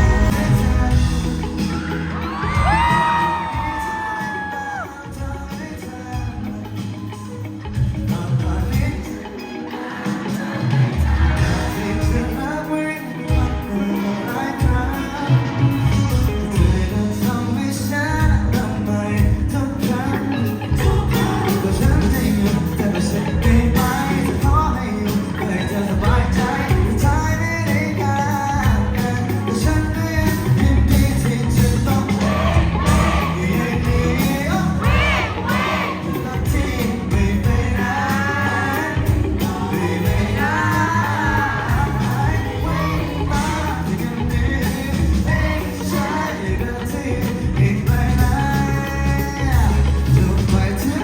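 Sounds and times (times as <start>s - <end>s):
drum beat: 0.0s - 6.6s, 10.2s - 12.6s, 20.7s - 27.8s, 28.6s - 48.8s
live rock band: 0.0s - 51.0s
person singing: 0.0s - 51.0s.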